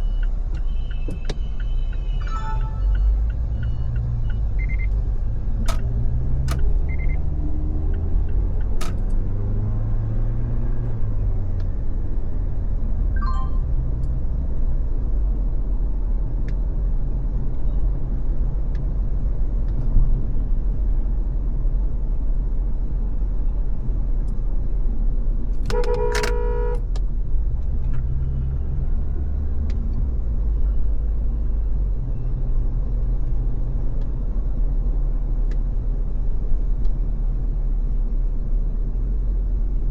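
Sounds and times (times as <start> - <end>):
road and engine rumble: 0.0 - 39.9
vehicle horn: 25.7 - 26.9.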